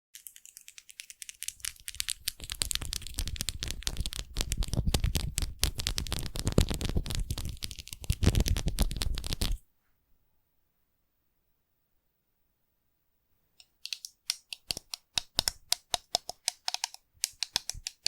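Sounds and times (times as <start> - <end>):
foam crackling and popping: 1.7 - 9.6.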